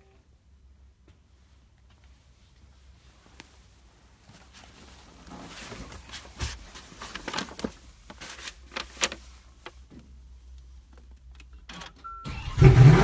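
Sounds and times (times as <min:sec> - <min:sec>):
car engine cranking and starting: 0:11.5 - 0:13.0.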